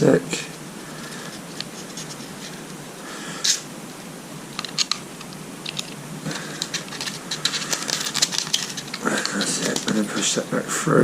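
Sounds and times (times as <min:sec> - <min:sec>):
metal parts scraping: 0:04.6 - 0:10.4.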